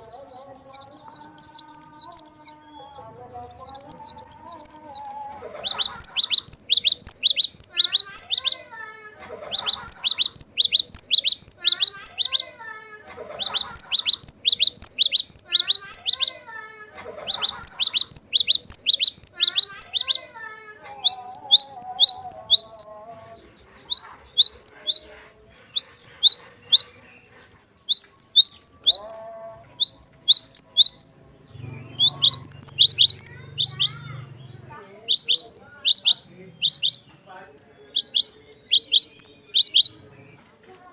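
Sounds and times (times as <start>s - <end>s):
bird singing high sharp notes: 0.0s - 8.9s, 9.5s - 12.7s, 13.4s - 16.6s, 17.2s - 23.0s, 23.8s - 25.1s, 25.7s - 27.2s, 27.8s - 40.4s
faint lower twittering: 0.0s - 12.7s, 13.3s - 16.6s, 17.2s - 40.4s.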